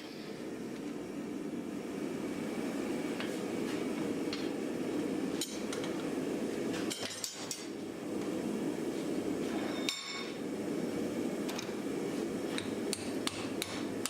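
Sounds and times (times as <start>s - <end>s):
tools clinking on hot iron: 5.4s - 6.0s, 6.8s - 7.7s, 9.6s - 10.4s.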